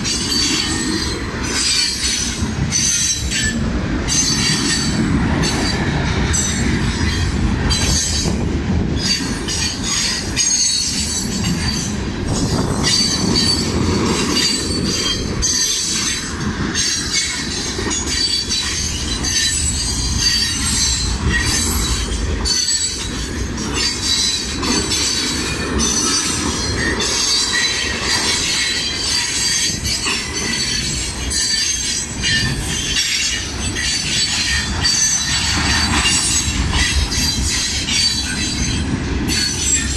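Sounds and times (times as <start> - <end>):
freight train rumble: 0.0 - 39.9
wheels clattering on rail: 0.0 - 39.9
wheel squeal: 9.0 - 39.9.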